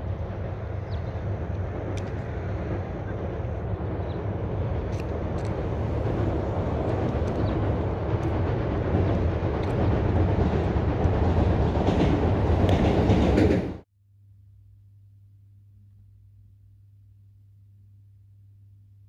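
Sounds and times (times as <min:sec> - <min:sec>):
freight train rumbling past: 0:00.0 - 0:13.8
wheels clicking on rails: 0:01.2 - 0:13.8
faint low hum: 0:14.0 - 0:19.0.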